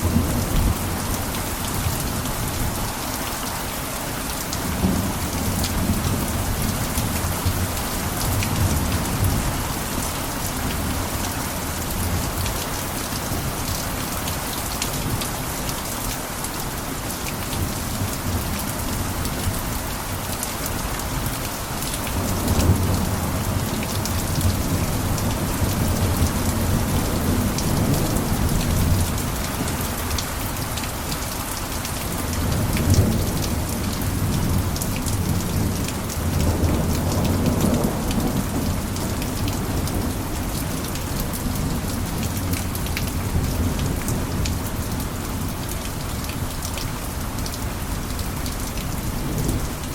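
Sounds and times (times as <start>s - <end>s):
heavy rain on a rooftop: 0.0s - 49.9s.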